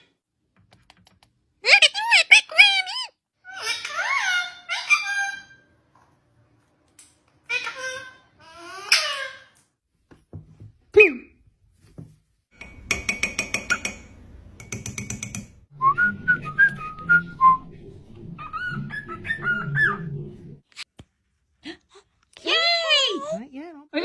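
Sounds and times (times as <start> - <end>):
parrot whistling: 18.4 - 20.2.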